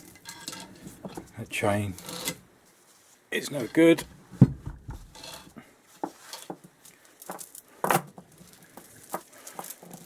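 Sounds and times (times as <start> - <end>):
dull thump on workbench: 4.4 - 5.2.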